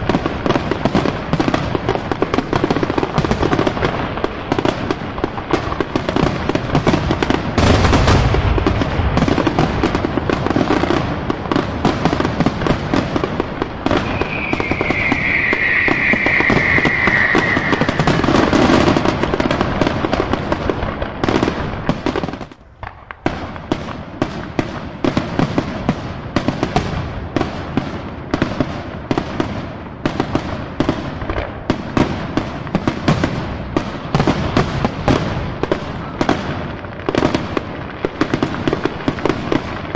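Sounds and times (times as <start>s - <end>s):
fireworks bangs and crackling: 0.0s - 39.9s
high falling whistle: 13.9s - 19.3s
heavy low boom: 14.0s - 19.5s.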